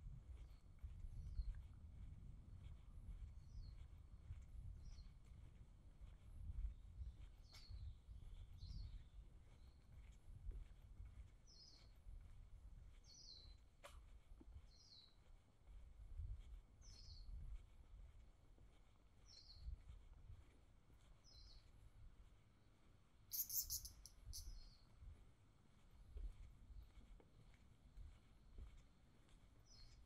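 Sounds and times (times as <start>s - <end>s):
faint low rumble: 0.0s - 30.0s
bird chirping: 11.5s - 12.0s, 21.1s - 21.7s, 23.3s - 24.9s, 29.6s - 30.0s.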